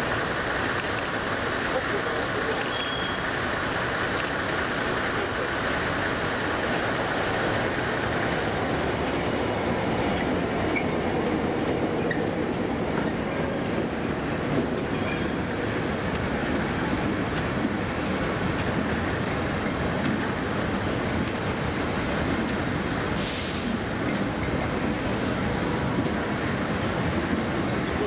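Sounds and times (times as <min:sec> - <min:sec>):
train wheels rumbling on rails: 0:00.0 - 0:28.0
short hiss: 0:23.2 - 0:23.8.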